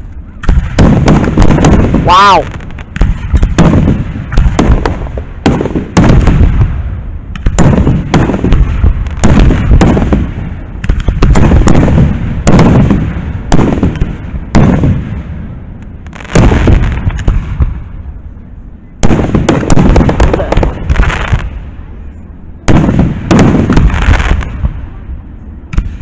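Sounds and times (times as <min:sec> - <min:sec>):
low rolling rumble: 0:00.0 - 0:26.0
firework shells booming: 0:00.4 - 0:17.9, 0:19.0 - 0:21.6, 0:22.7 - 0:24.8.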